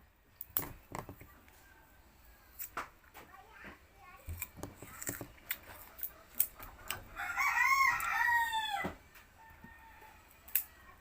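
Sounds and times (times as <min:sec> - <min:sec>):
rooster crowing: 0:07.1 - 0:10.4.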